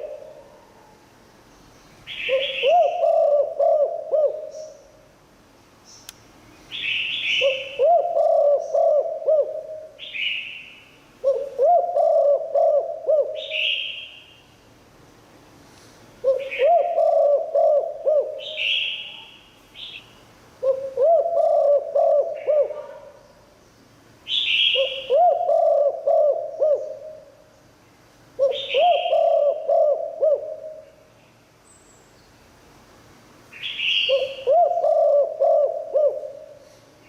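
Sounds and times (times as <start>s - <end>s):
dove cooing: 0.0s - 0.9s, 2.1s - 4.9s, 7.4s - 10.2s, 11.2s - 14.0s, 16.2s - 19.0s, 20.6s - 23.2s, 24.6s - 27.4s, 28.4s - 31.0s, 34.0s - 36.8s.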